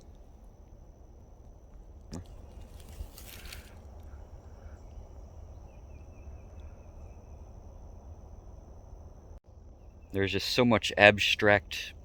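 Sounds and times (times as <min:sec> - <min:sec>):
rustle: 0:00.0 - 0:07.4
insect trill: 0:00.0 - 0:12.0
insects buzzing: 0:00.0 - 0:12.0.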